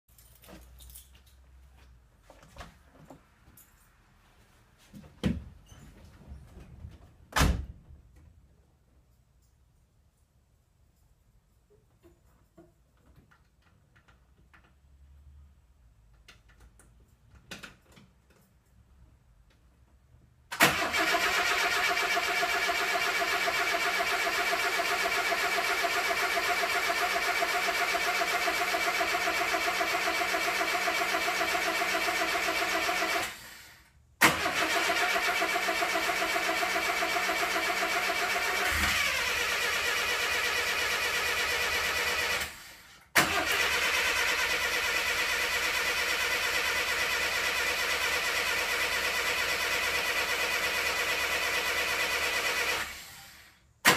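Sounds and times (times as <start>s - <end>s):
starter motor cranking engine: 20.5s - 53.9s.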